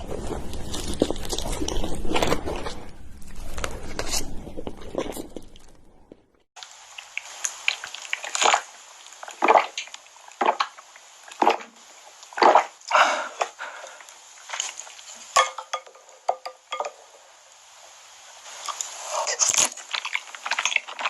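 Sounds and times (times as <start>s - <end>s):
crunchy eating and chewing: 0.0s - 6.3s, 18.6s - 21.0s.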